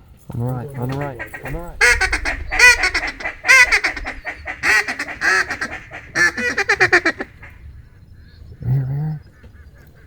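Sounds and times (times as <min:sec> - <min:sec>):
duck quacking: 0:00.8 - 0:07.6.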